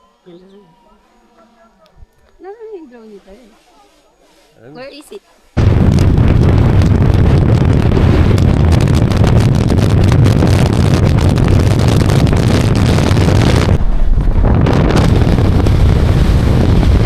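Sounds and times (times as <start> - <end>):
wind buffeting microphone: 5.6 - 17.0.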